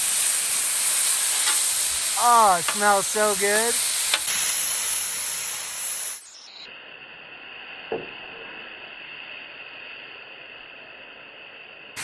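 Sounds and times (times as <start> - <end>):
meat sizzling loudly: 0.0 - 6.6
steady hiss: 0.0 - 12.0.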